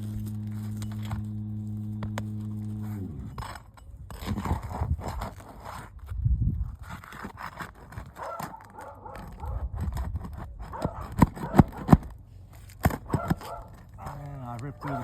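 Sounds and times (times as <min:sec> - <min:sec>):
dog barking: 0:08.2 - 0:09.7, 0:10.7 - 0:12.0, 0:13.0 - 0:15.0.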